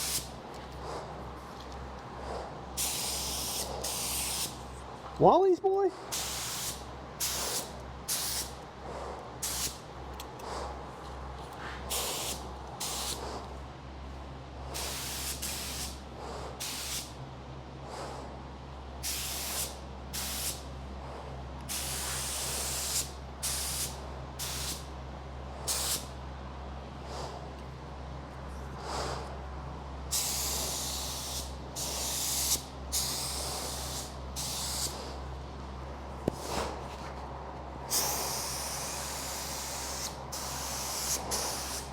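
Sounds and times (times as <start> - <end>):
spray gun hissing: 0.0 - 0.3, 2.8 - 4.6, 6.1 - 8.6, 9.4 - 9.8, 11.9 - 13.3, 14.8 - 16.0, 16.6 - 17.1, 19.0 - 20.6, 21.7 - 24.9, 25.7 - 26.1, 30.1 - 35.1, 37.9 - 41.9
steady low hum: 0.0 - 41.9.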